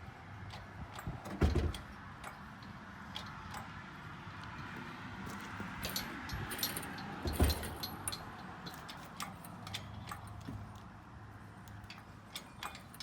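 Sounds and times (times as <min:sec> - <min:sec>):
metal chain clinking: 0:05.3 - 0:10.5, 0:11.8 - 0:13.0.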